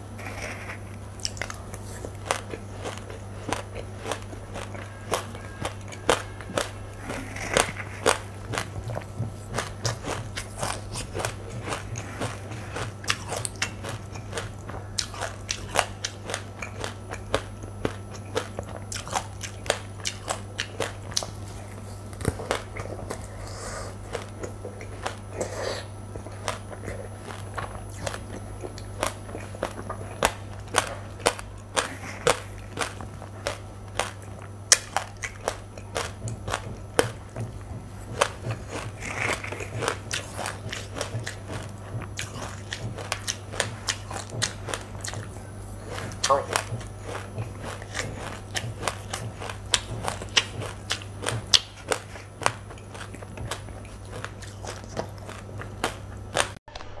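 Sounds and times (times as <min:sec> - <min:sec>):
chewing crunchy seeds: 0:00.0 - 0:57.0
steady low hum: 0:00.0 - 0:57.0.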